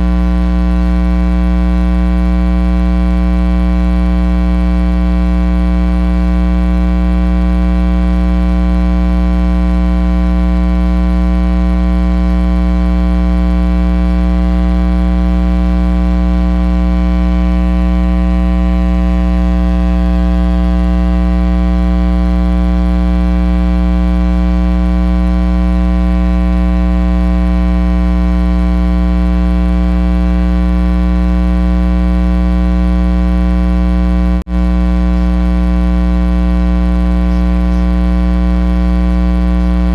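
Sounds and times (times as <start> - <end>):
electrical mains hum: 34.5 - 39.9.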